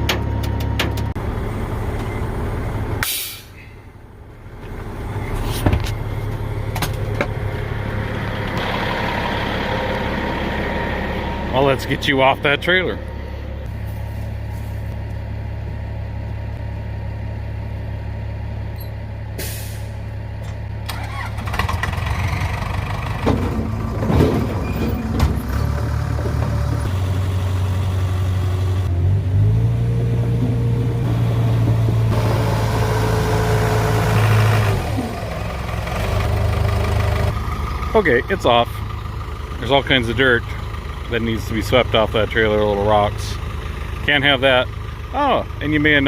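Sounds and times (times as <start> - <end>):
metal knocks and clanks: 0.0 - 1.2, 23.1 - 26.9
bulldozer diesel engine running: 0.0 - 46.0.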